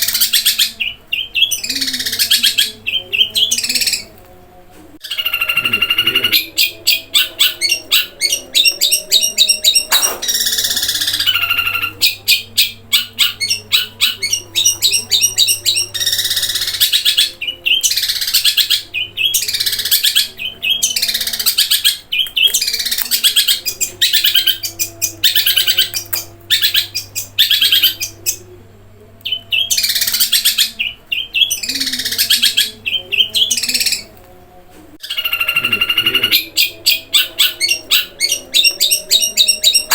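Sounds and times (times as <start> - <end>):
bird singing trills and calls: 5.0 - 28.4, 35.0 - 39.9.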